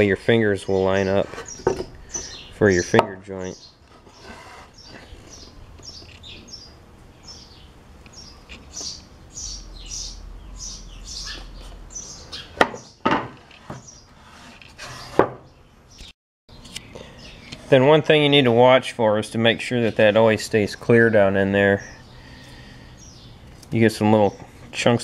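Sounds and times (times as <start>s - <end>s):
bird chirping: 0.0s - 13.1s, 14.9s - 17.7s, 19.8s - 23.6s.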